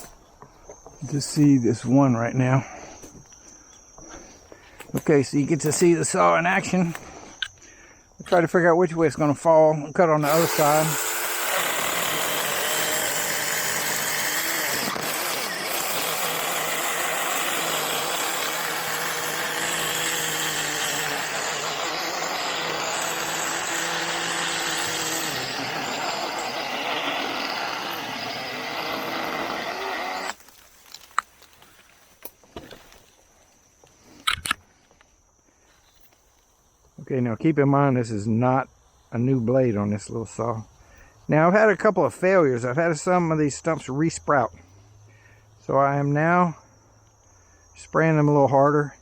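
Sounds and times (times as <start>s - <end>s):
chainsaw cutting tree trunk: 10.2s - 31.1s.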